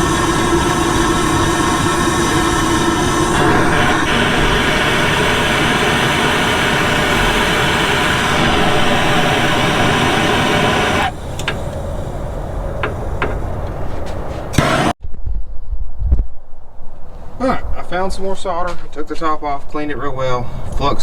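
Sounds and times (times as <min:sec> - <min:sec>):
engine running with rushing noise: 0:00.0 - 0:15.0.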